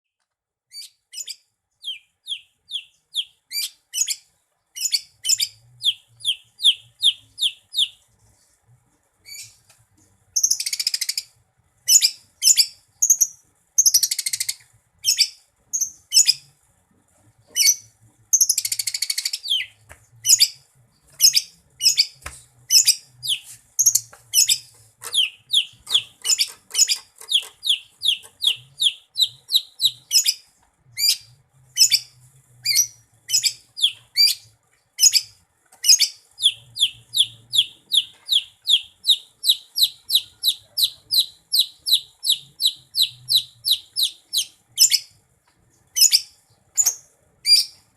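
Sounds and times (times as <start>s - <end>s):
bird whistling song: 0.7s - 4.2s, 4.8s - 8.0s, 11.9s - 16.4s, 18.4s - 20.6s, 21.2s - 30.4s, 31.0s - 34.4s, 35.0s - 45.1s, 46.0s - 47.8s
bird harsh scratchy chattering: 22.7s - 30.2s.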